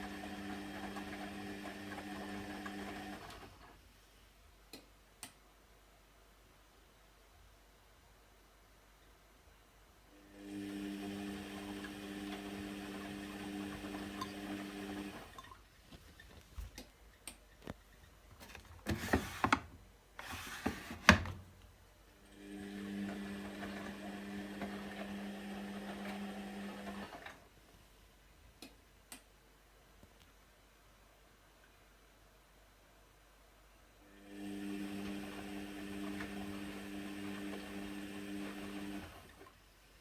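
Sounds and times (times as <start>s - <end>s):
washing machine motor hum: 0.0s - 3.7s, 10.1s - 15.6s, 22.2s - 27.4s, 34.0s - 39.5s.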